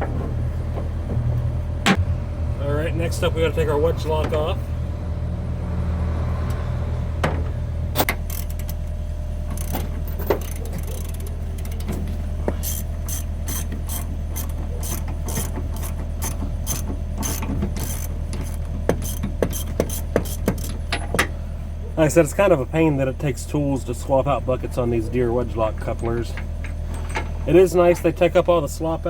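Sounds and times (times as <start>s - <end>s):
excavator engine idling: 0.0s - 29.0s
ratchet wrench clicking: 10.4s - 11.9s, 12.6s - 20.8s.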